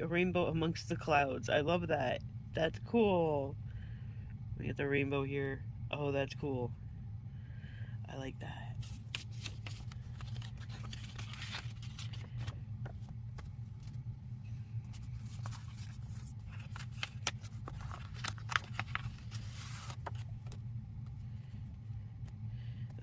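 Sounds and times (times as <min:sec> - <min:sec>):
steady low hum: 0:00.0 - 0:23.0
paper rustling and crinkling: 0:08.8 - 0:14.0, 0:14.8 - 0:20.6.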